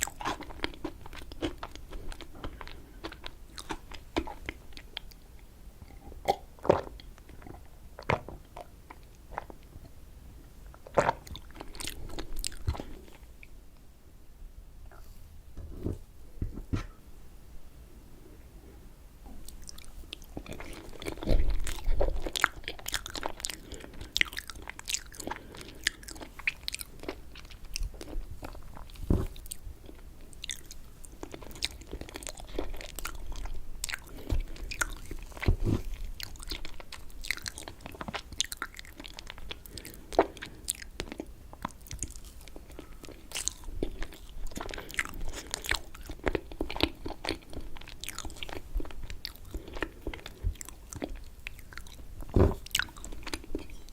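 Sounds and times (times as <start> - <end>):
wet chewing and mouth smacks: 19.4 - 53.9
low thumps: 52.3 - 52.8.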